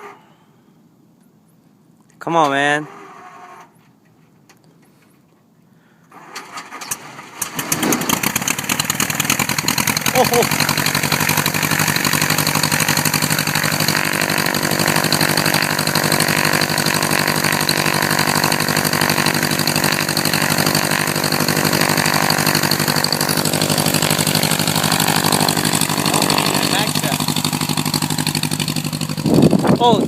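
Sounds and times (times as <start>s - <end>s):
small plane engine and propeller: 6.8s - 30.0s.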